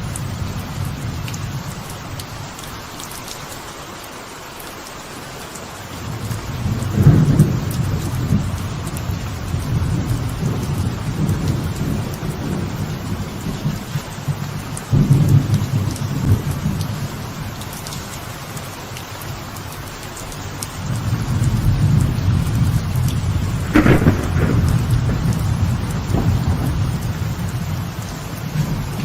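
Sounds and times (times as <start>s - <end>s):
light rain on veranda: 0.0s - 29.0s
rolling thunder: 6.1s - 17.2s, 20.9s - 29.0s.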